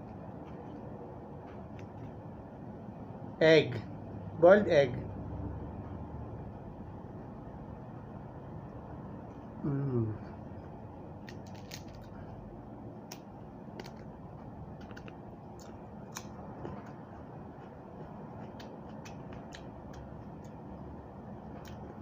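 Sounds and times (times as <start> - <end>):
low background hum: 0.0 - 22.0
eating clicks and crackles: 11.1 - 22.0.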